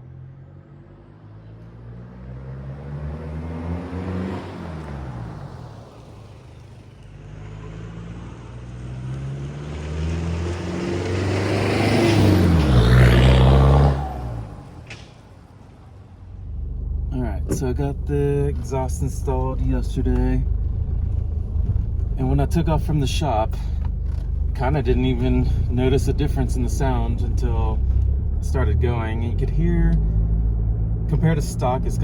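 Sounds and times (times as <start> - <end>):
diesel engine accelerating: 0.0 - 32.0.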